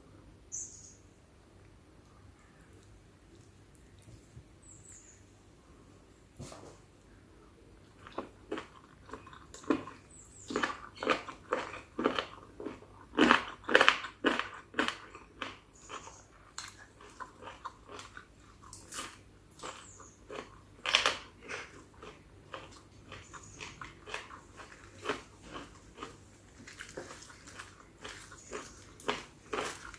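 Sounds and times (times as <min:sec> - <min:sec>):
crunching bites and chewing: 0:07.8 - 0:29.9.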